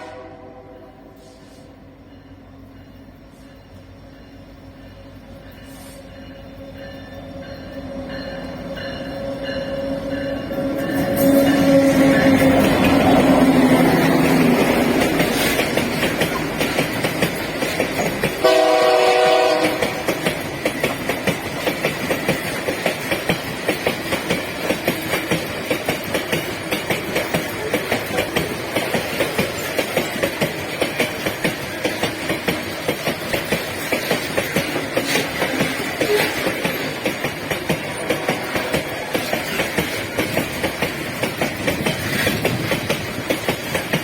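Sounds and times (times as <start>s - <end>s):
locomotive air horn: 0.0s - 1.8s, 18.4s - 20.0s
train wheels clicking over rail joints: 1.2s - 44.0s.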